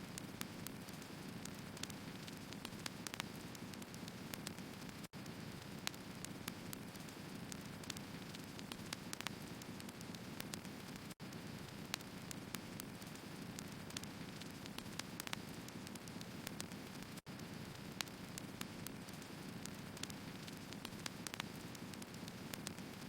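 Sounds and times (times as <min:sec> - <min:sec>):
wood fire crackling: 0:00.1 - 0:23.0.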